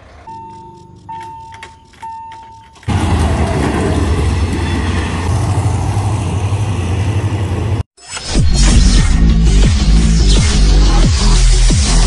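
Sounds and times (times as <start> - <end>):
level crossing warning bell: 0.2 - 3.0
train coaches rumbling over crossing: 2.7 - 7.8.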